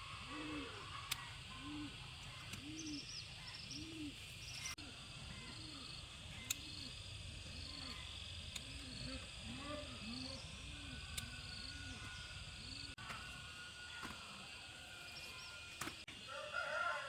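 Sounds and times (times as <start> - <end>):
low hooting calls: 0.0 - 7.0.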